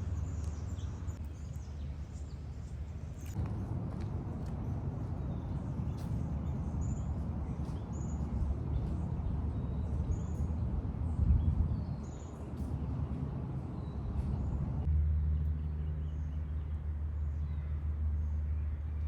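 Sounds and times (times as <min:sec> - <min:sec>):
small birds chirping: 0:00.0 - 0:03.4
steady low rumble: 0:00.0 - 0:19.0.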